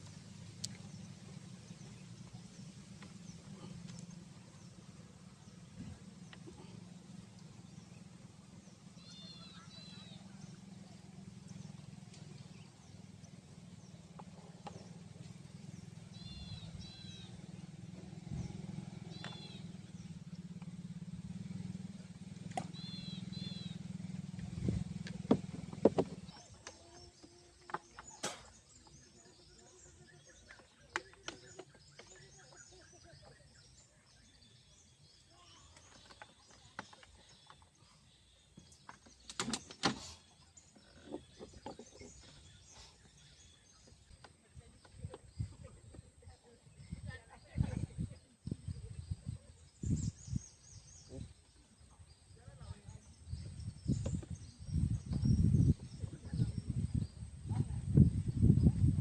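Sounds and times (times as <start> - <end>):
sharp clicks and knocks: 25.0 - 26.9.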